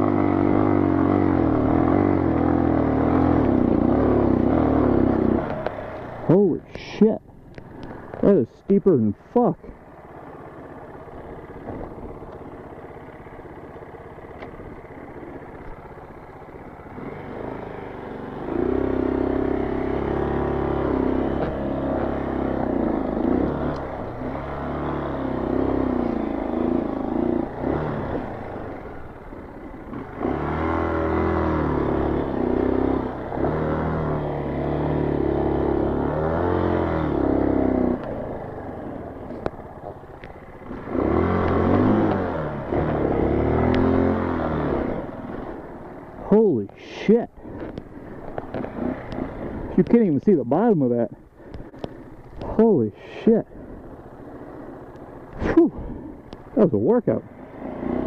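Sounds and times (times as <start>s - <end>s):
dirt bike engine revving: 0.0s - 7.2s, 10.2s - 58.0s.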